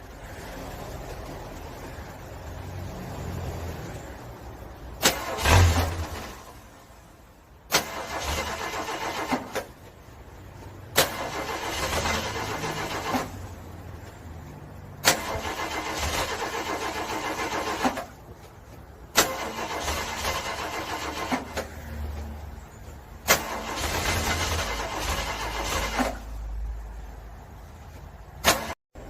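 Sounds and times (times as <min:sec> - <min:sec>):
car engine cranking: 0:05.0 - 0:06.7, 0:07.7 - 0:14.1, 0:15.0 - 0:21.8, 0:22.9 - 0:26.5.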